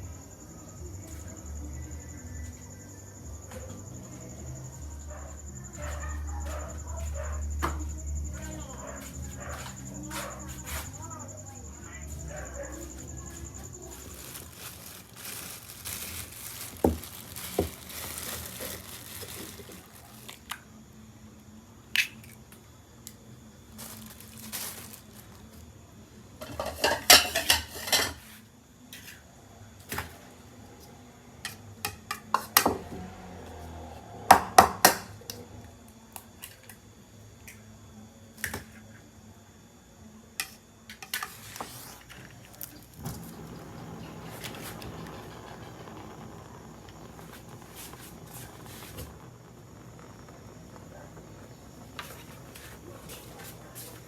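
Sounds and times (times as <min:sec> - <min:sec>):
dishes and utensils clattering: 0:26.4 - 0:28.2.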